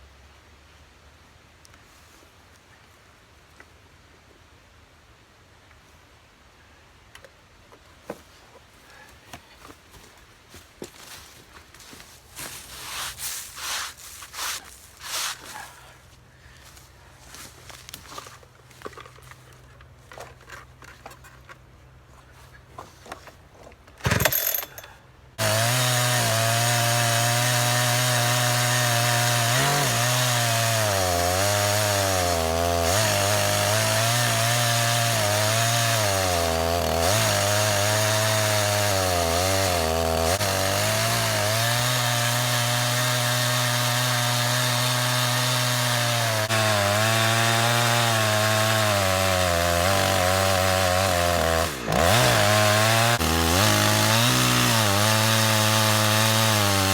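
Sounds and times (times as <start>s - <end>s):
chainsaw ripping a log: 24.0s - 24.8s, 25.4s - 56.9s.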